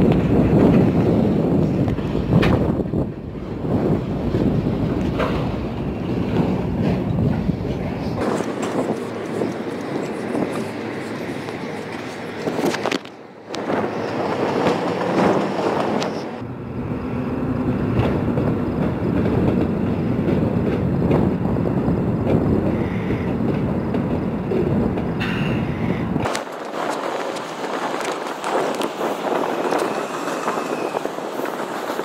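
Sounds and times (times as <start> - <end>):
diesel locomotive engines rumbling: 0.0 - 32.0
rail cars rolling: 0.0 - 32.0.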